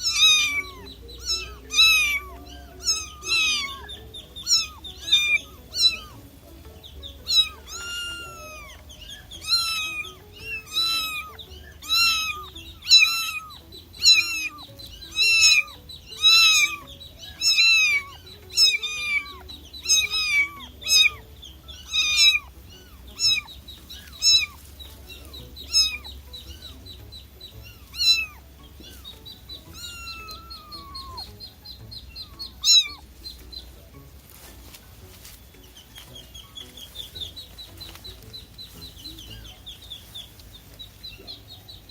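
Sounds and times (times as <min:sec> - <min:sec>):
kitten meowing: 0:00.0 - 0:06.2, 0:07.2 - 0:21.2, 0:21.8 - 0:24.6, 0:25.2 - 0:26.7, 0:27.6 - 0:31.4, 0:32.2 - 0:33.1.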